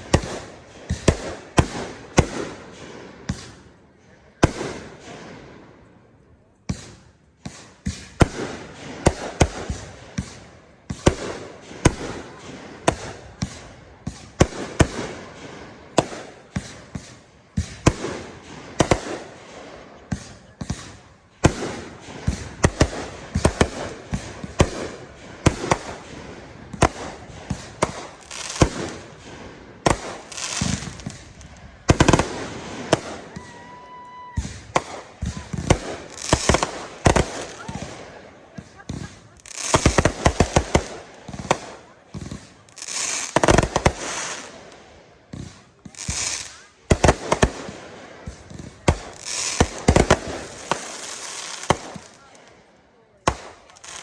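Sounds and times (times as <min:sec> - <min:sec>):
fireworks banging: 0:00.0 - 0:03.7, 0:06.6 - 0:54.0
fireworks crackling: 0:00.0 - 0:05.7, 0:06.7 - 0:54.0.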